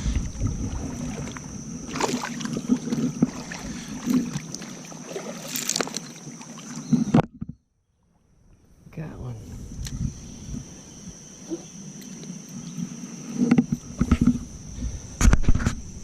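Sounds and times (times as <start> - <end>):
water splashing: 0.0 - 7.1.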